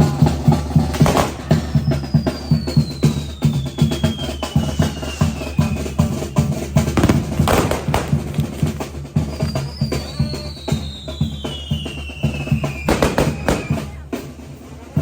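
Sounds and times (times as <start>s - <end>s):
bass drum beat: 0.0s - 14.6s
wind band playing: 0.0s - 15.0s
sharp firework bang: 0.9s - 2.1s, 7.0s - 8.6s, 12.9s - 13.9s
firework whistles sliding down: 1.0s - 7.6s, 9.4s - 14.0s.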